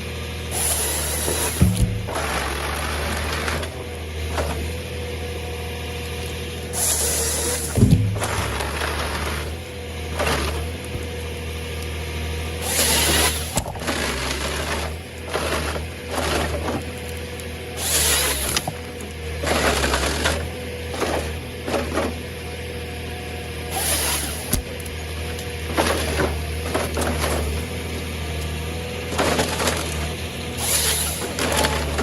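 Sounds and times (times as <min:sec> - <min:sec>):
excavator engine running: 0:00.0 - 0:32.0
hydraulic hiss bursts: 0:00.5 - 0:02.0, 0:06.7 - 0:08.3, 0:12.6 - 0:13.7, 0:17.8 - 0:18.7, 0:23.7 - 0:24.6, 0:30.6 - 0:31.4.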